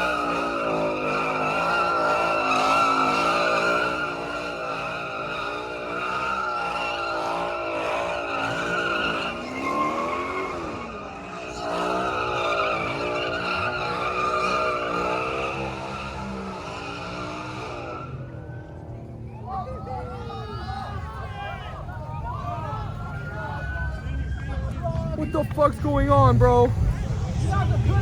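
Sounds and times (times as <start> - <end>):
car engine at high revs: 0.0 - 19.3, 25.2 - 28.0
tire squeal: 0.0 - 28.0.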